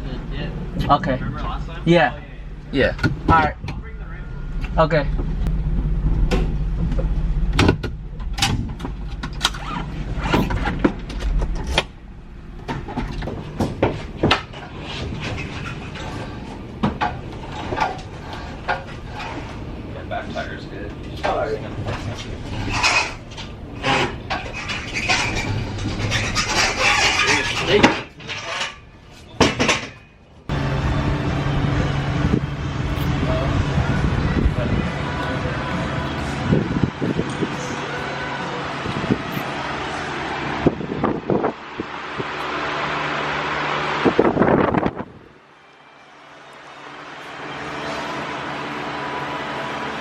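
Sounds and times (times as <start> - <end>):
vehicle engine idling: 0.0 - 26.2, 30.2 - 50.0
steady low hum: 0.0 - 50.0
metal clanking and rattling: 2.9 - 30.3.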